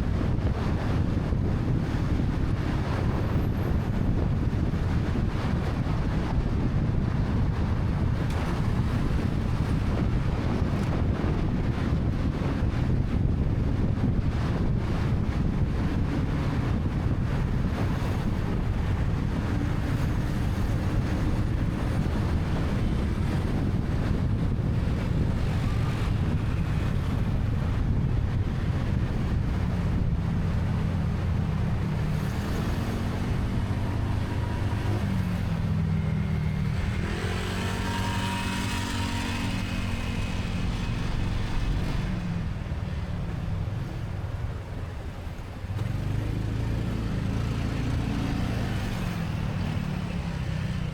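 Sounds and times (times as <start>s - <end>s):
wind buffeting microphone: 0.0s - 50.9s
motorcycle engine revving: 30.5s - 42.6s.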